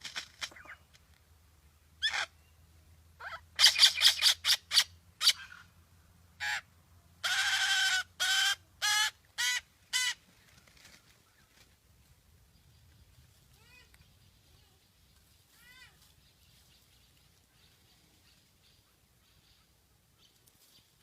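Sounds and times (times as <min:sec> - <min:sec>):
bird calling loudly: 0:02.0 - 0:02.5, 0:03.2 - 0:05.7.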